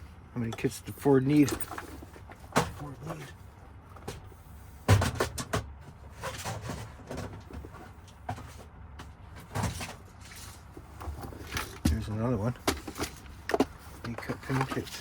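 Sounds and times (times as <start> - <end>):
plastic cases and metal parts rattling: 1.3 - 3.3, 9.3 - 15.0.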